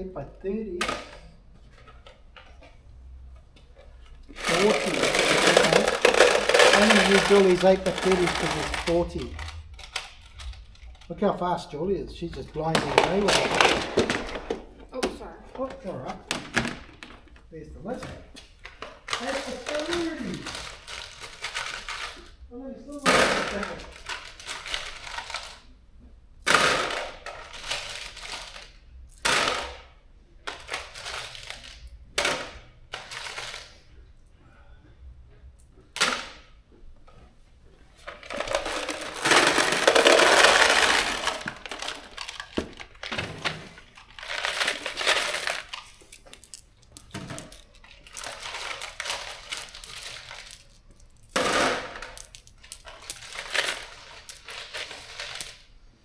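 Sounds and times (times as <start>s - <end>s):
steel bolts clinking and rattling: 44.2s - 55.7s.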